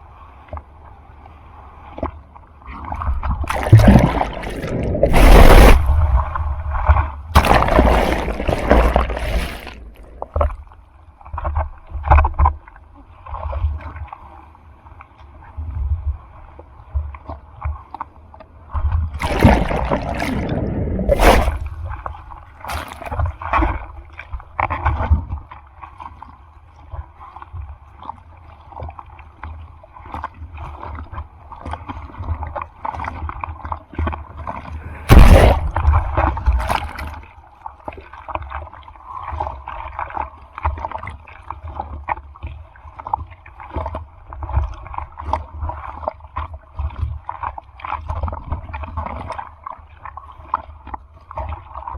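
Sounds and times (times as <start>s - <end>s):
sea water sloshing and splashing: 1.4s - 51.9s
heavy water splashes: 3.4s - 10.6s, 19.1s - 23.8s, 34.7s - 37.3s.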